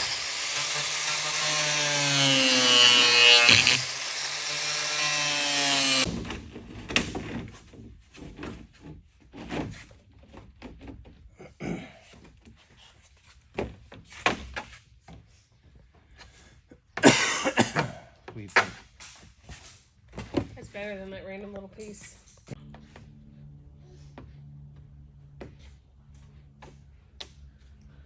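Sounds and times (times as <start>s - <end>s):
power tool running: 0.0s - 6.1s.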